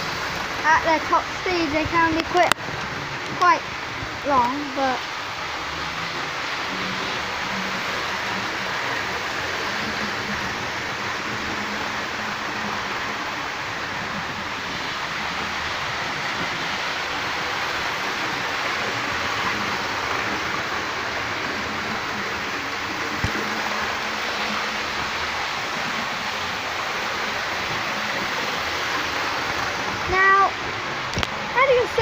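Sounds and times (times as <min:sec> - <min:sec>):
model trains running on track: 0:00.0 - 0:32.0.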